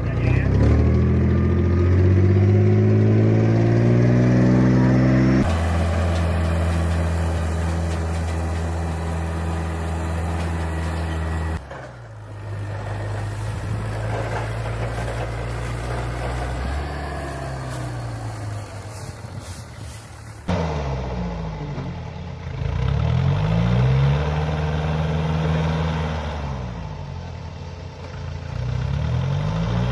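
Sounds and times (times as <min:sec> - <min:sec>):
engine running steadily: 0:00.0 - 0:23.0
tractor engine running: 0:00.0 - 0:29.9.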